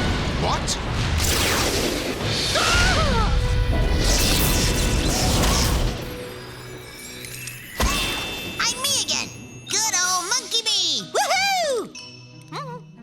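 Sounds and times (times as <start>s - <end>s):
dramatic cartoon score: 0.0s - 6.6s, 7.8s - 13.0s
crash: 0.0s - 6.8s
magic whooshes: 3.4s - 7.0s.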